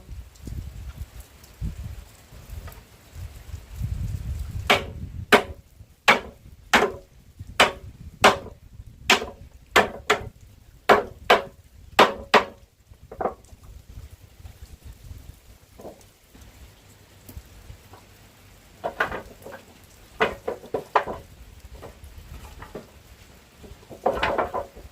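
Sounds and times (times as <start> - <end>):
hand tool striking wood: 4.7 - 10.3, 10.9 - 13.4, 18.8 - 19.6, 20.2 - 21.2, 23.6 - 24.9.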